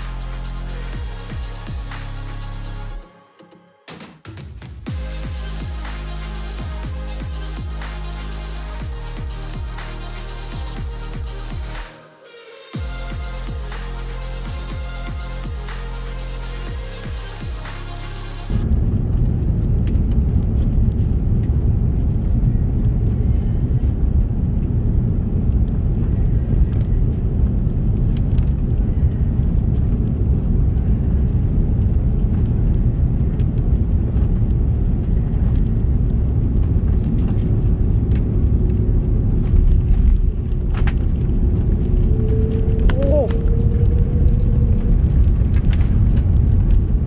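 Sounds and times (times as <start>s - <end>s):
aircraft engine and airflow rumble: 29.3s - 47.0s.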